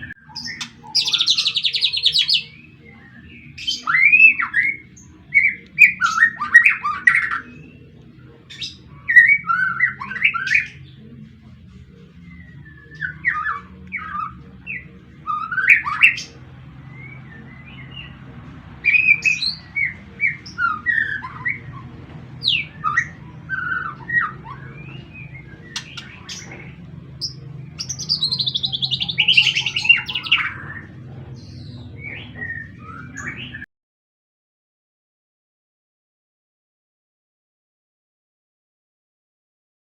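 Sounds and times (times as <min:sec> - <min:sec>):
songbird whistling and chirping: 0:00.0 - 0:33.7
low hum: 0:06.8 - 0:33.6.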